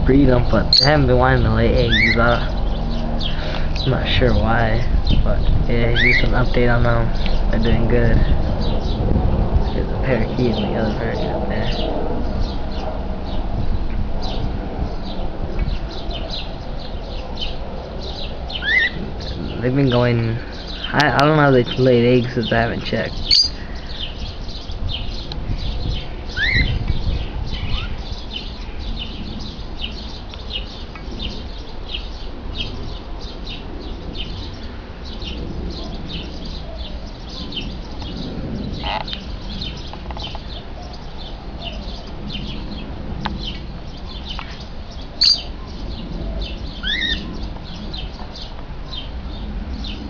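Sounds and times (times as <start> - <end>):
sharp loud bird call: 0.0 - 4.0, 5.8 - 6.4, 18.5 - 19.6, 23.2 - 25.2, 26.3 - 26.8, 45.2 - 45.5, 46.8 - 47.3
birds chirping: 0.0 - 50.0
louder rising bird calls: 1.6 - 3.9, 6.0 - 6.3, 14.2 - 19.5, 23.1 - 45.6, 46.2 - 49.0.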